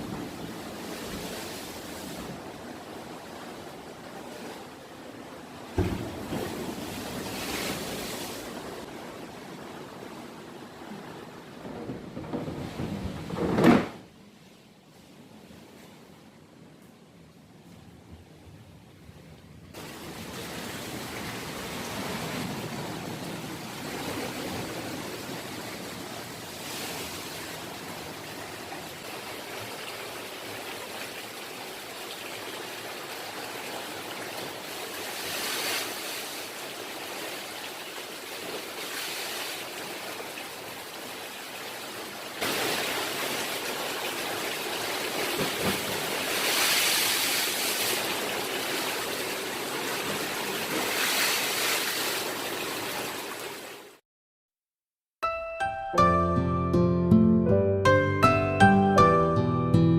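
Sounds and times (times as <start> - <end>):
water rushing: 0.0 - 13.3, 19.8 - 54.0.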